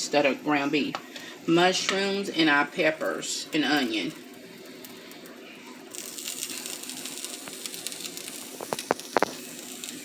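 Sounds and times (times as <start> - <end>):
food sizzling in a hot pan: 2.8 - 10.0.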